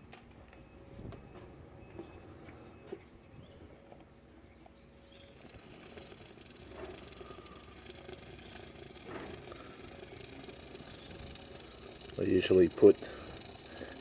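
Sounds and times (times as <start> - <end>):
motor oil pouring from bottle: 5.3 - 14.0.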